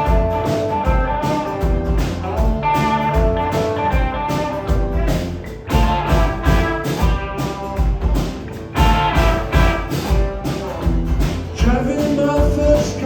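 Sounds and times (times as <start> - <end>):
bass guitar: 0.0 - 13.0
guitars playing: 0.0 - 13.0
steady drum beat: 0.0 - 13.0.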